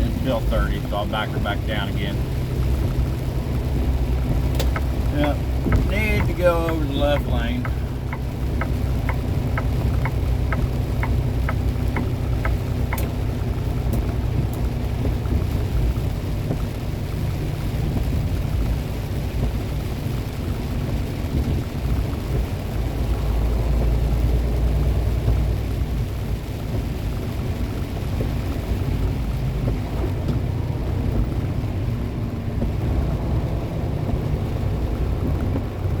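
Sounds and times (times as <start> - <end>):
truck engine and road drone: 0.0 - 36.0
turn signal clicking: 3.7 - 15.3.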